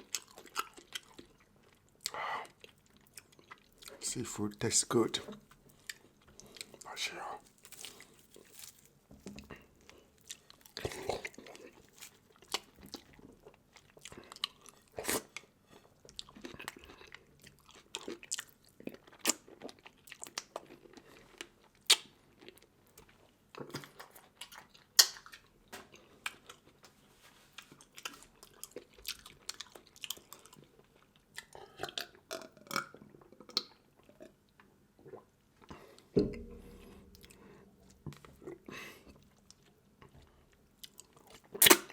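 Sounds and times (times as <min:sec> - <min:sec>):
chewing and crunching seafood: 0:00.0 - 0:41.9
low dull thud: 0:36.2 - 0:36.9.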